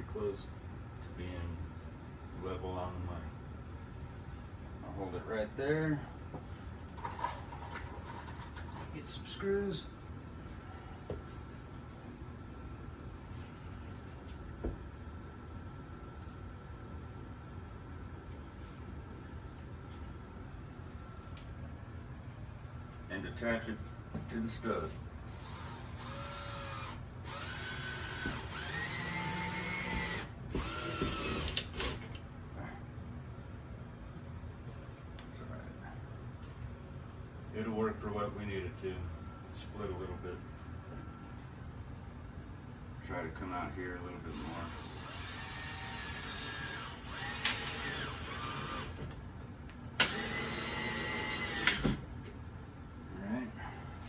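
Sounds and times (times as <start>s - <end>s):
cordless drill driving screw: 25.3s - 32.0s, 44.3s - 49.0s, 50.0s - 52.0s.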